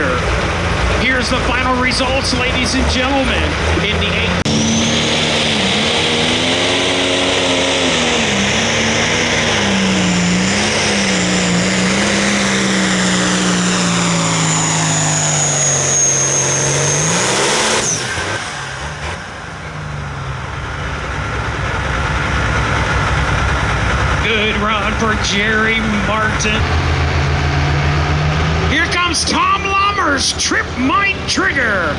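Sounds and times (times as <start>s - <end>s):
diesel tractor engine at full power: 0.0s - 31.9s
high turbo whistle: 4.4s - 19.4s.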